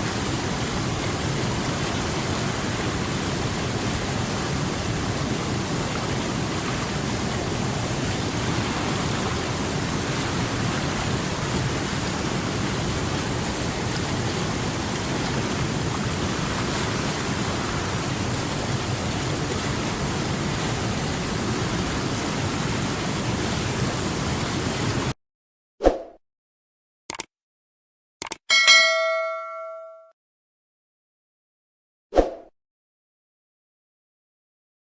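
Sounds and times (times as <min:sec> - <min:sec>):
water rushing over rocks: 0:00.0 - 0:25.1
short ringing tone: 0:28.5 - 0:30.1.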